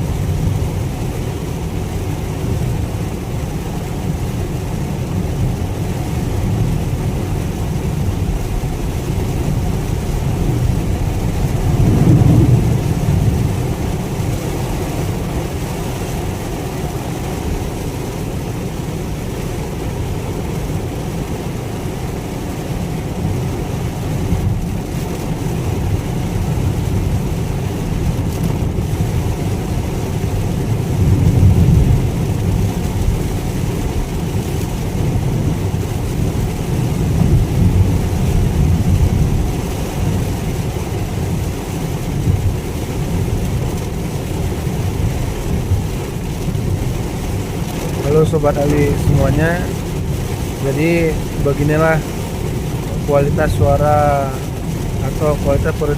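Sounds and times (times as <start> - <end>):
muffled car cabin rumble: 0.0 - 55.9.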